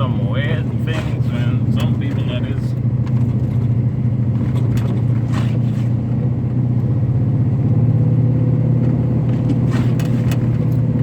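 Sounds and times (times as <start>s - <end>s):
truck engine and tyres drone: 0.0s - 11.0s.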